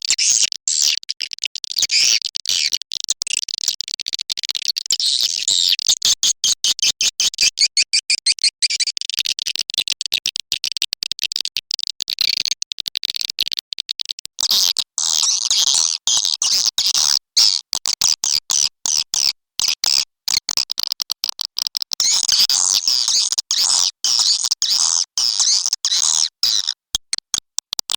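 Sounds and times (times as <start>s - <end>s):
swiftlet chirping and twittering: 7.3s - 9.0s.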